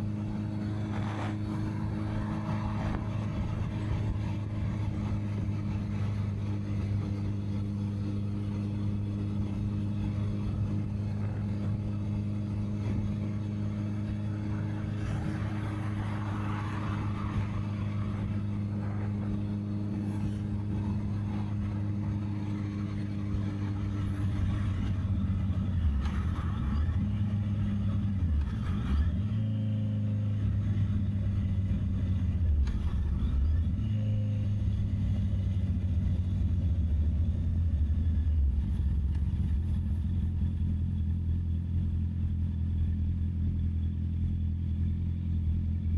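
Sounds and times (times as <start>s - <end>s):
wind rushing over microphone: 0.0s - 27.4s
motorcycle engine running: 0.0s - 45.9s.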